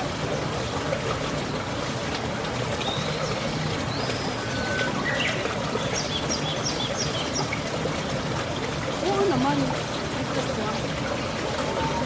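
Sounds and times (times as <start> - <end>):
trickle of running water: 0.0 - 12.0
small birds calling: 2.8 - 7.7.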